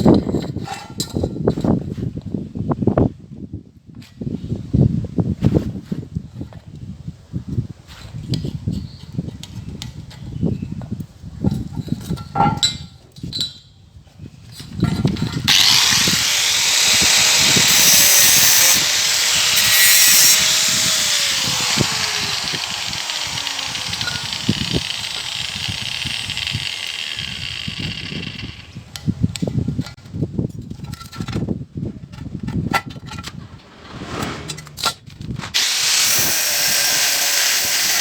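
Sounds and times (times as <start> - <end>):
power tool running on metal: 15.5 - 28.8, 35.6 - 38.0.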